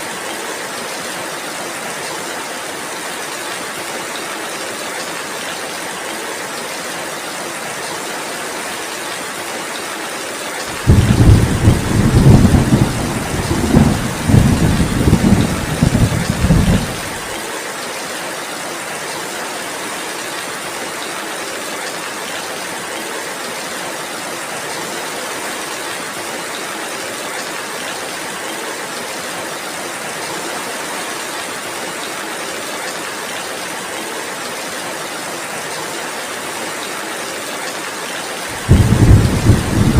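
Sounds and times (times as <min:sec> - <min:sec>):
heavy rain: 0:00.0 - 0:39.9
deep rumble of thunder: 0:10.8 - 0:17.2, 0:38.6 - 0:39.9.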